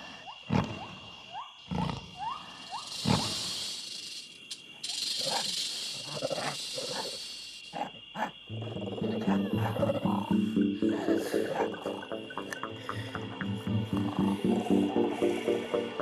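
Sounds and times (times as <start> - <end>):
high insect-like drone: 2.6 - 7.8, 8.5 - 16.0
background music: 8.5 - 16.0
cartoon animal calls: 8.6 - 16.0.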